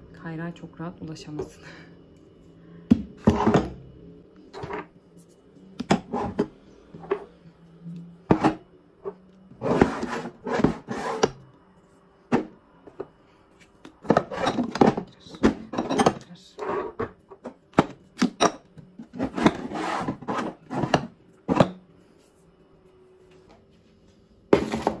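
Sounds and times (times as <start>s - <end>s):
containers knocking and scraping in drawer: 8.3s - 8.6s, 9.6s - 11.4s, 14.0s - 21.8s.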